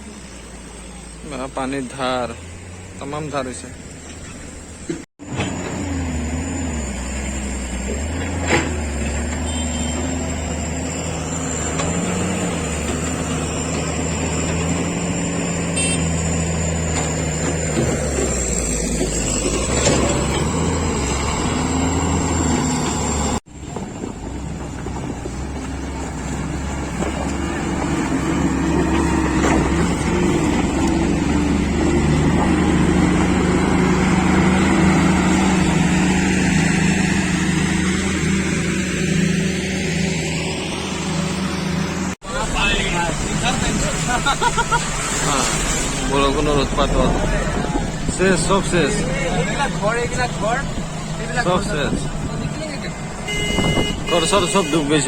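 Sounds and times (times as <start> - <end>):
road noise: 0.0 - 55.0
vehicle engine running: 21.9 - 55.0.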